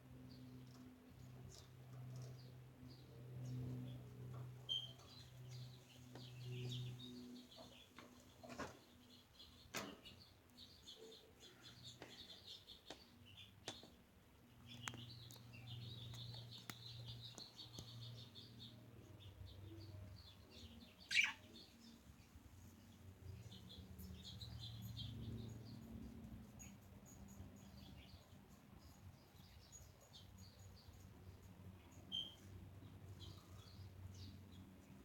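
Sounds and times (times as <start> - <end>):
budgerigars chattering and warbling: 21.1 - 21.5.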